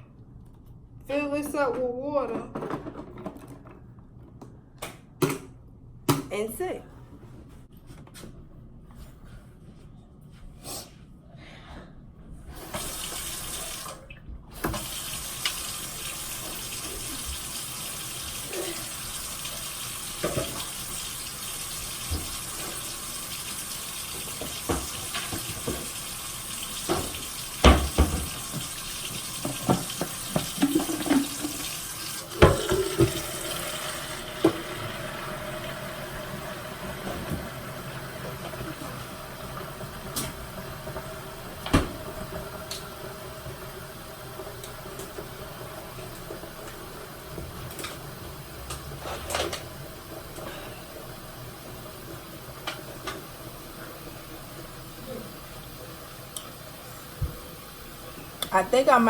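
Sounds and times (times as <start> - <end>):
tap water filling plastic tank: 12.7 - 48.0.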